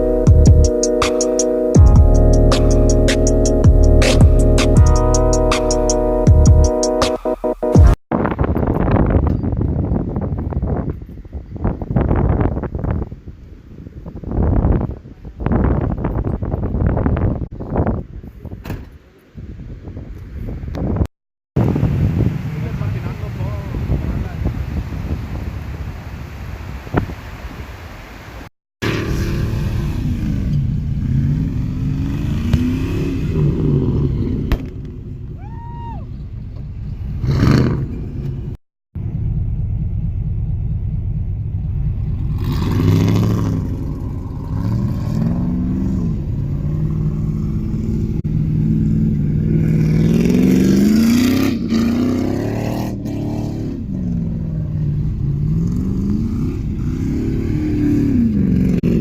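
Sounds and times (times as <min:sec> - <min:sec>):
truck engine accelerating: 0:00.0 - 0:08.0, 0:28.8 - 0:35.4, 0:36.1 - 0:59.0.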